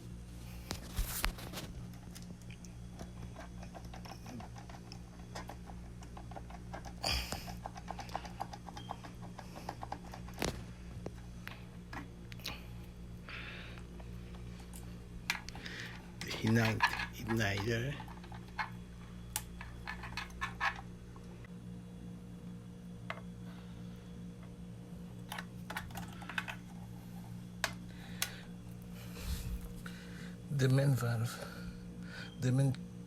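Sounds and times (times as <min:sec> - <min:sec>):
steady low hum: 0:00.0 - 0:33.0
hand tools clicking and tapping: 0:03.0 - 0:10.6.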